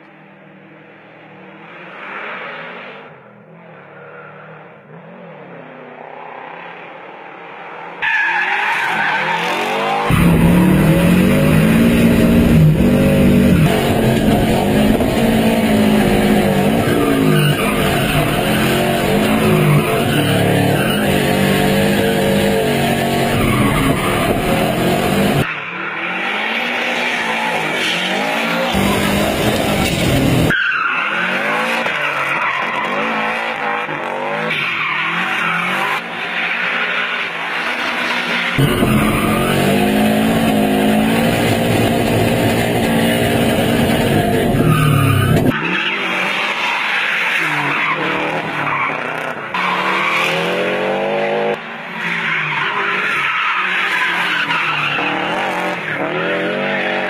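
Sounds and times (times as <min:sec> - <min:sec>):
tyres skidding and squealing: 0:01.4 - 0:57.0
car engine revving: 0:08.9 - 0:46.6.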